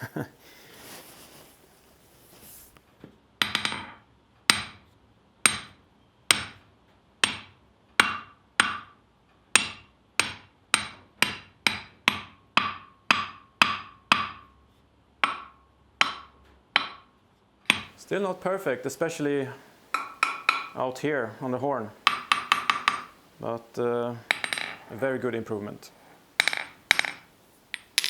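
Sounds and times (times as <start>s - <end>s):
hammer clanging on anvil: 19.9s - 21.0s, 22.0s - 23.2s, 24.2s - 25.0s, 26.4s - 28.0s.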